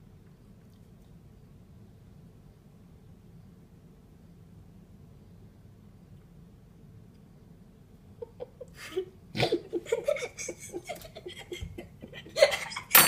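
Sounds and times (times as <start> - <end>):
person laughing and giggling: 8.2 - 13.0.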